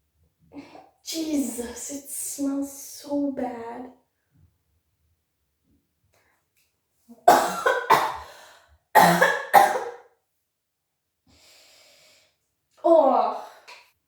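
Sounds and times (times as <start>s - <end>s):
woman coughing: 7.3s - 8.2s, 9.0s - 10.0s.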